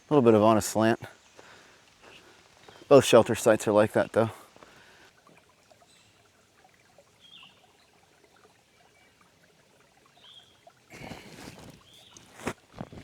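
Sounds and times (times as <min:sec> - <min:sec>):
footsteps rustling: 0:10.9 - 0:13.0.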